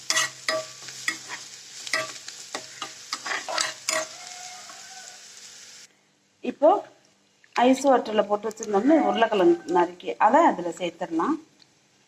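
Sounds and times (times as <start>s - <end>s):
spoon scraping pan: 0.0s - 5.0s
onion frying in oil: 0.0s - 5.9s.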